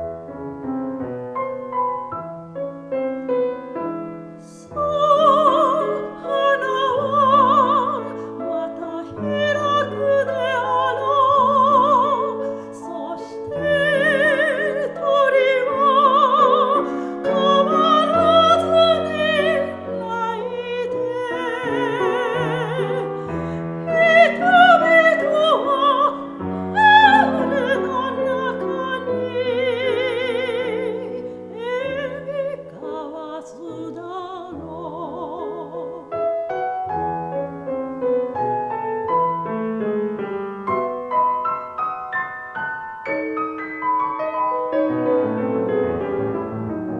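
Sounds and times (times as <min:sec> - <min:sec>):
piano accompaniment: 0:00.0 - 0:46.9
soprano singing with vibrato: 0:04.1 - 0:37.2.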